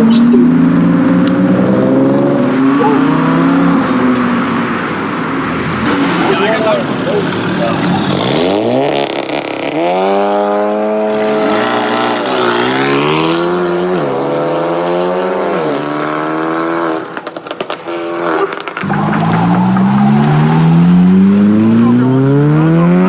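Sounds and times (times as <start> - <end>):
car engine accelerating: 0.0 - 23.0
second car engine revving: 0.0 - 23.0
exhaust pops: 17.0 - 22.4.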